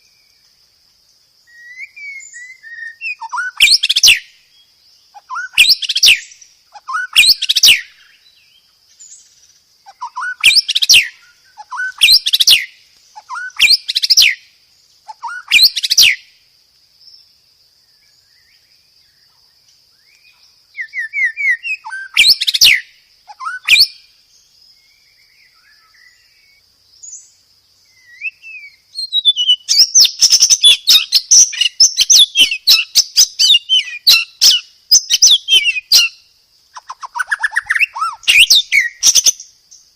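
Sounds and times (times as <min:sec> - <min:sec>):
songbird chirp phrases: 0:00.0 - 0:39.9
faint high whistle-like tone: 0:01.4 - 0:03.6.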